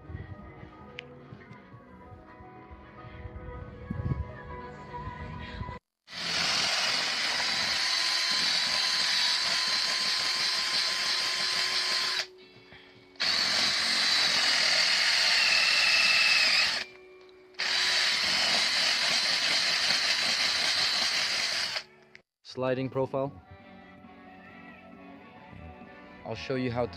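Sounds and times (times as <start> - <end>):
electric drill boring into wood: 6.1 - 12.3, 13.2 - 17.0, 17.6 - 21.9.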